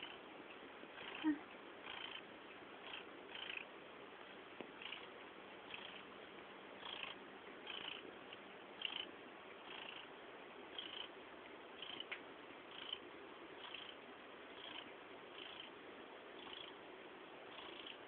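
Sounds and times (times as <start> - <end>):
cat purring loudly: 0.9 - 3.7, 4.8 - 5.1, 5.7 - 6.0, 6.8 - 8.1, 8.8 - 10.1, 10.7 - 11.2, 11.8 - 12.1, 12.7 - 13.0, 13.6 - 14.0, 14.6 - 15.7, 16.4 - 16.8, 17.4 - 18.0.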